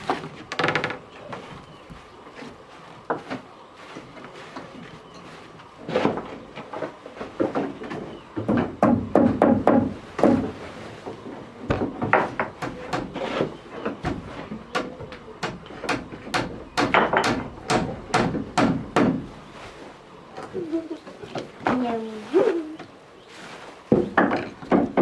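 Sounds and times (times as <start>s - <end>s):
knocks of hard objects: 7.4s - 10.6s, 11.7s - 19.4s, 23.9s - 25.0s.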